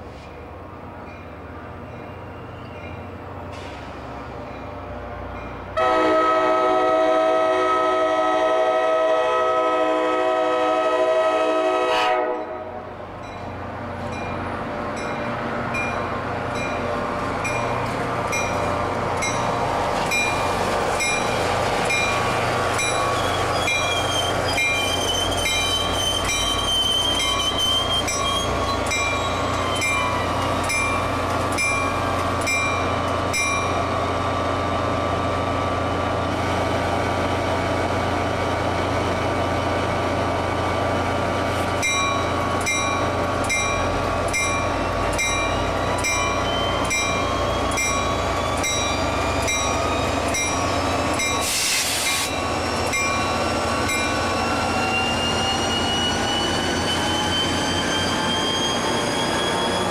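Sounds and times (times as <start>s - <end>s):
diesel locomotive running: 0.0s - 59.9s
train bell ringing: 1.0s - 3.2s, 13.2s - 33.9s, 41.8s - 59.9s
high wheel squeal: 22.8s - 31.1s, 44.7s - 59.9s.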